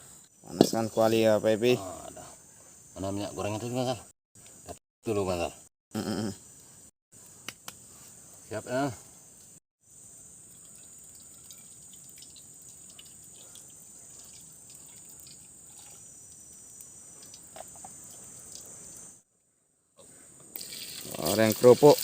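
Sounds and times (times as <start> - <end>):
high-pitched insect drone: 0.9 - 6.6, 8.2 - 19.3
light drips: 10.4 - 19.1
low hiss: 20.0 - 22.0.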